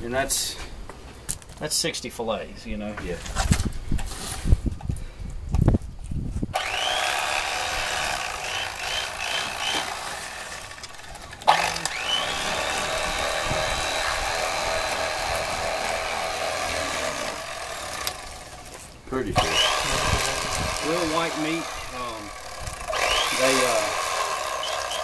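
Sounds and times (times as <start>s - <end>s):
electric knife motor whining: 6.6s - 25.0s.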